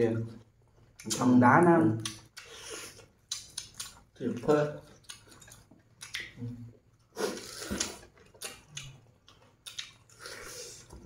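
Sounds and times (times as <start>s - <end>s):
chewing with lip smacks: 2.0s - 4.2s, 4.8s - 11.0s.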